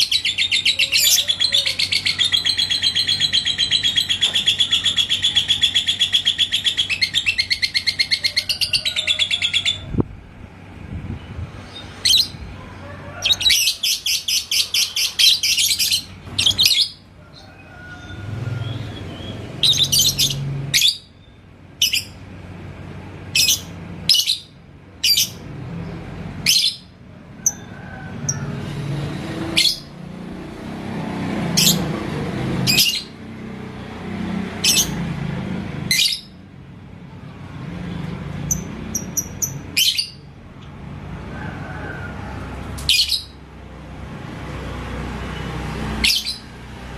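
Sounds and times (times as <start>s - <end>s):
lovebird chattering: 0.0s - 9.9s, 13.2s - 17.0s, 18.6s - 22.2s.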